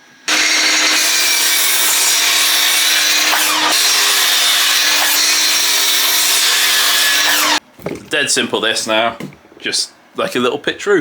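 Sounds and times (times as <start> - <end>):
power saw cutting wood: 0.3 - 7.6.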